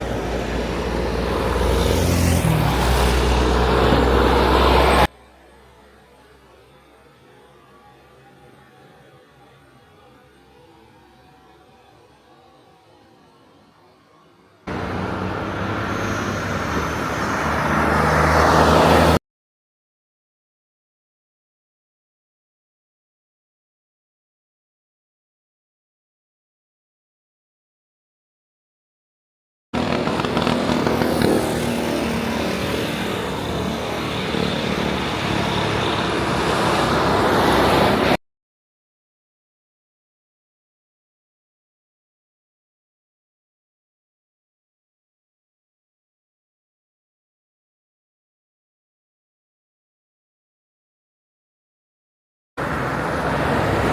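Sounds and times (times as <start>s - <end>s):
heavy truck engine running: 0.0s - 5.1s, 14.7s - 18.0s, 29.8s - 38.1s
road noise: 0.0s - 5.1s, 14.7s - 19.2s, 29.8s - 38.2s, 52.6s - 53.9s.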